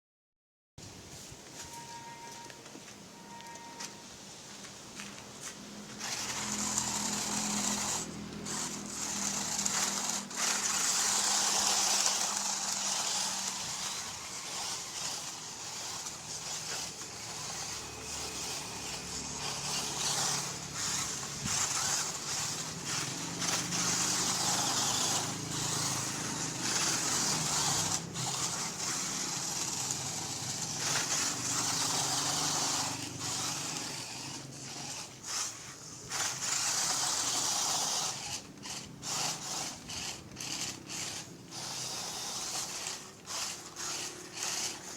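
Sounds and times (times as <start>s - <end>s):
electric motor and gears whining: 4.6s - 44.9s.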